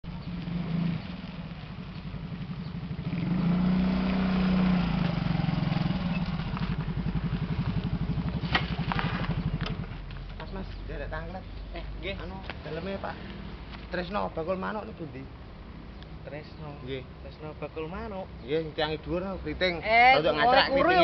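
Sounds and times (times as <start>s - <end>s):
motorcycle engine running: 0.1s - 10.1s.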